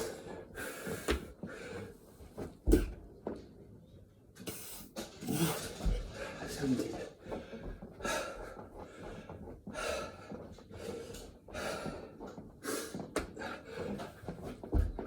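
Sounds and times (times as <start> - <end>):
man panting heavily: 5.4 - 14.4.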